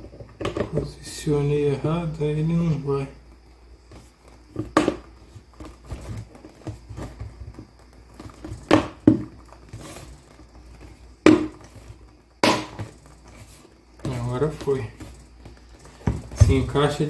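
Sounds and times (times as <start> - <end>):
plastic parts rubbing: 3.8 - 17.0
sharp plastic knocks: 4.5 - 9.4, 11.2 - 11.7, 12.4 - 13.0.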